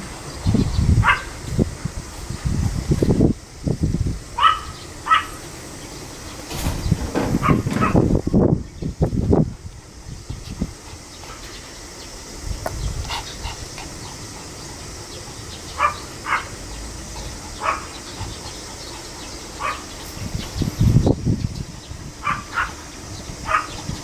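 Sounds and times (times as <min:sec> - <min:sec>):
low rumble of handling noise: 0:00.0 - 0:24.0
small dog barking: 0:01.0 - 0:01.4, 0:04.4 - 0:05.4, 0:07.4 - 0:08.1, 0:15.7 - 0:16.6, 0:17.5 - 0:18.2, 0:19.6 - 0:20.0, 0:22.2 - 0:23.9.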